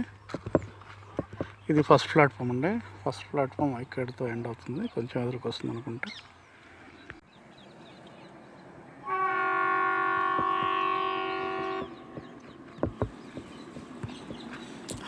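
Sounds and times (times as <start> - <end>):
locomotive horn blast: 9.0 - 13.0.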